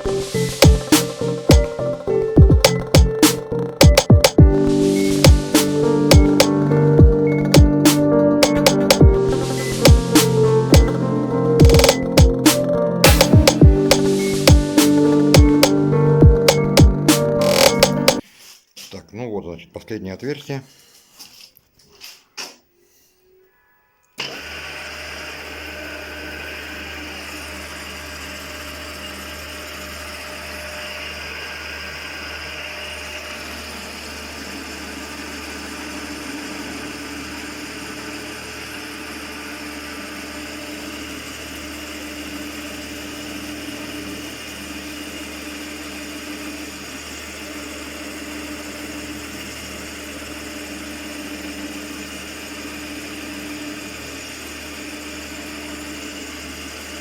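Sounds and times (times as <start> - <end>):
pitched tone: 0.0 - 18.2
milling machine cutting metal: 24.2 - 57.0.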